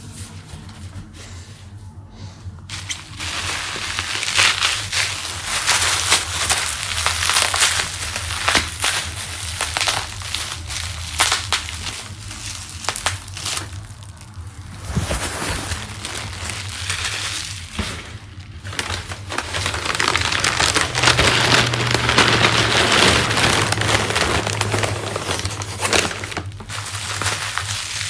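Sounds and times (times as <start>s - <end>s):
paper crumpled and rustled: 2.7s - 28.0s.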